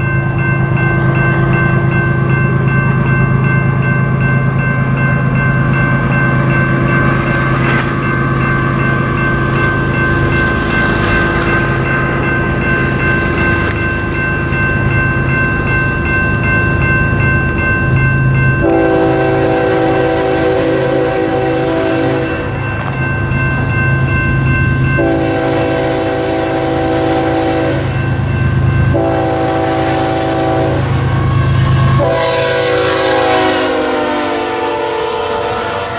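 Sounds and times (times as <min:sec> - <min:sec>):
freight train rumbling past: 0:00.0 - 0:35.9
locomotive whining tones: 0:00.0 - 0:35.9
locomotive horn chord: 0:18.6 - 0:22.5, 0:25.0 - 0:28.0, 0:28.9 - 0:35.9.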